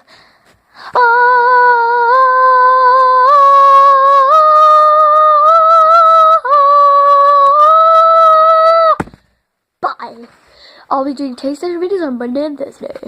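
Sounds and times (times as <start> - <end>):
high voice singing held notes: 0.9 - 9.0.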